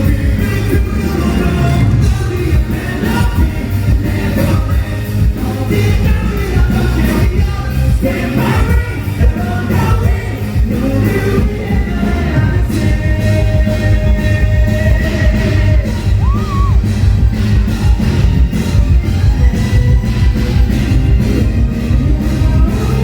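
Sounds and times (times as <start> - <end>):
person singing: 0.0 - 17.0, 21.8 - 23.0
pop-rock band playing: 0.0 - 23.0.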